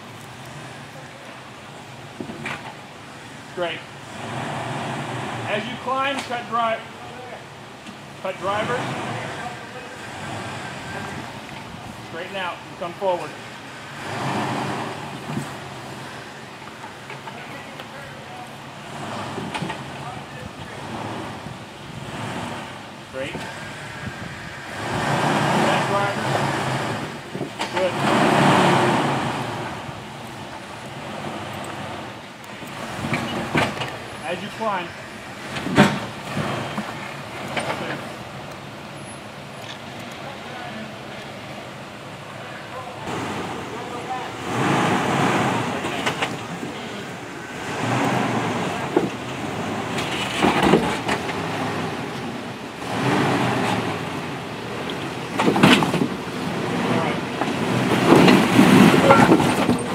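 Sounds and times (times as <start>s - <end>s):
jeep engine under load: 0.0s - 59.9s
loud rushing noise: 43.0s - 59.9s.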